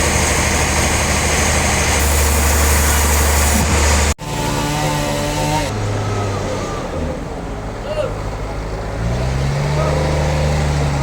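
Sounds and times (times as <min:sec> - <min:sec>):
sawmill machinery humming: 0:00.0 - 0:07.4
engine-like running sound: 0:00.0 - 0:11.0
loud hiss: 0:01.7 - 0:04.2.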